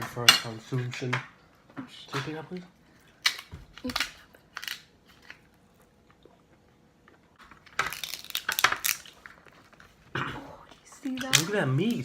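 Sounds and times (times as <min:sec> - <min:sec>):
crab shells cracking by hand: 0:03.2 - 0:05.4, 0:07.4 - 0:09.4.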